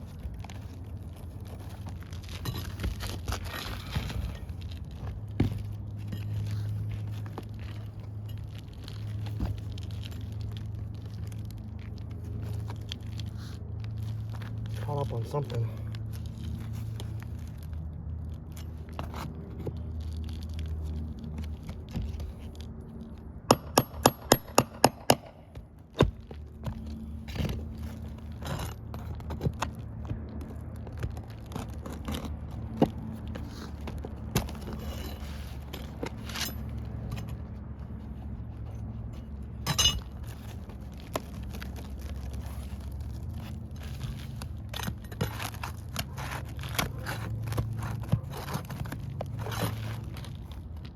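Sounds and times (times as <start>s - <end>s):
low steady hum: 0.0s - 50.9s
shingles scraping: 39.2s - 50.8s
metal clinks: 39.6s - 40.2s.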